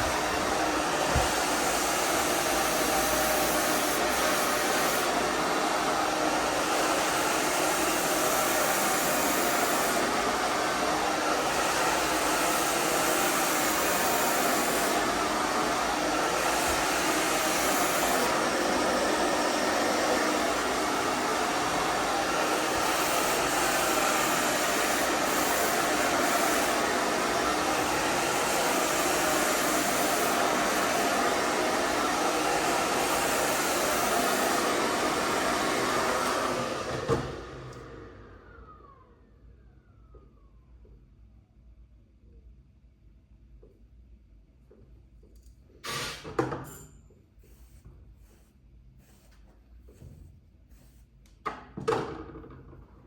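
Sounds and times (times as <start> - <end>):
hairdryer blowing: 0.0 - 39.2, 45.8 - 46.4.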